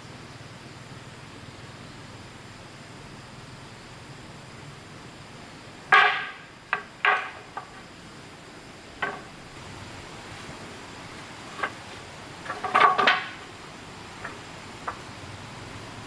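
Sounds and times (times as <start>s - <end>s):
hard objects knocking together: 5.9s - 7.9s, 9.0s - 9.6s, 11.5s - 13.6s, 14.2s - 15.0s.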